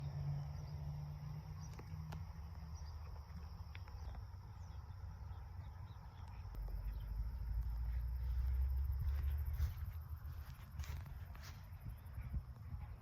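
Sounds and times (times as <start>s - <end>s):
crickets trilling: 0.0s - 13.0s
low rumble: 5.9s - 13.0s.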